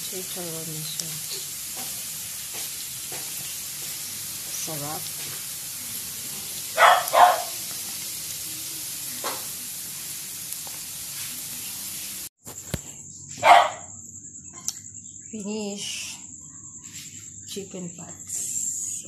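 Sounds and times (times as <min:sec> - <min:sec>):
oil sizzling: 0:00.0 - 0:12.4
dog barking: 0:06.7 - 0:07.6, 0:13.4 - 0:14.0.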